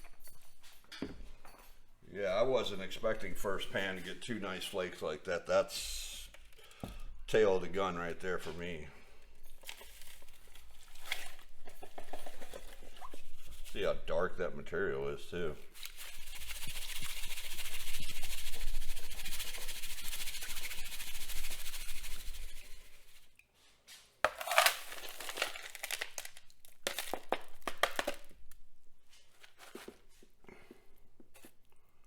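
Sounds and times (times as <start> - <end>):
wet gravel scraping in strainer: 15.6 - 23.4, 24.3 - 28.1.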